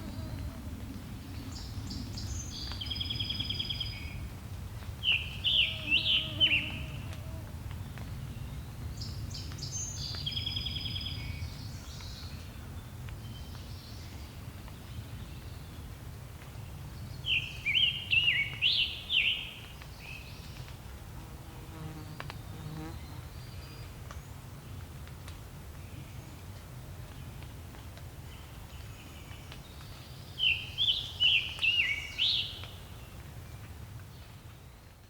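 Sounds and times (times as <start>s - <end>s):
songbirds singing: 0.0s - 4.3s, 5.0s - 15.9s.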